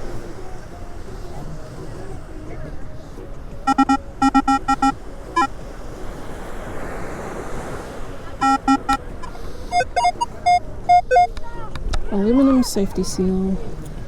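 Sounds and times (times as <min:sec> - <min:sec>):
surf washing in: 0:00.0 - 0:11.3
metal detector beeping: 0:03.7 - 0:05.5, 0:08.4 - 0:11.4.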